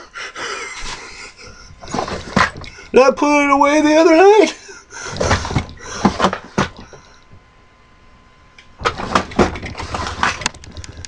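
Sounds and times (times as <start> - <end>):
tools rattling in a drawer: 8.8 - 11.0.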